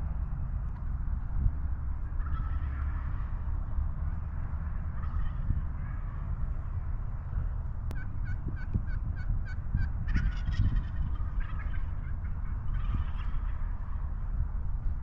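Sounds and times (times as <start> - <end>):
low rumble: 0.0 - 15.0
wild turkeys calling: 2.0 - 3.6, 4.7 - 6.2, 8.0 - 14.1
turkey gobble: 2.1 - 3.4, 4.7 - 6.2, 8.0 - 14.0.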